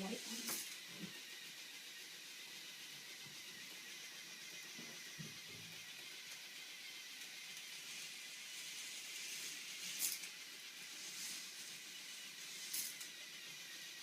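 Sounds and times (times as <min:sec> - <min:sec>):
small motor whirring: 0:00.0 - 0:14.0.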